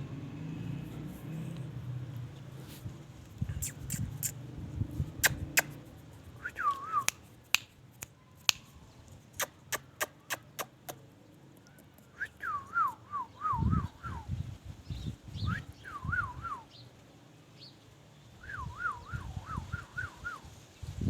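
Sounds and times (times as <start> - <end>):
parrot clicking: 9.4 - 11.0.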